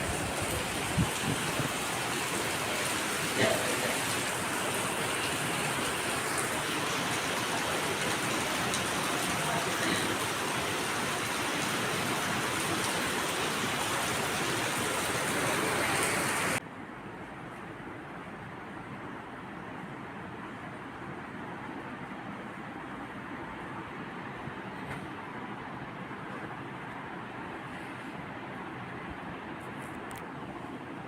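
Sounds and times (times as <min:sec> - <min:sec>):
heavy rain falling: 0:00.0 - 0:16.6.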